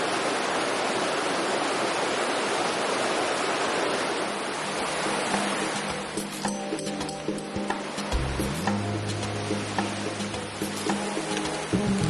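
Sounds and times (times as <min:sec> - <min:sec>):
rushing water: 0:00.0 - 0:12.0
faint music: 0:05.0 - 0:12.0.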